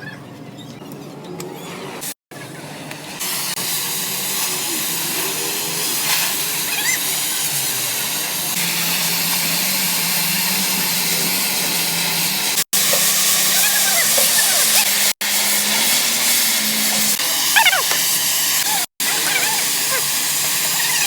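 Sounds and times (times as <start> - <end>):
welding arc crackling: 3.2 - 21.0.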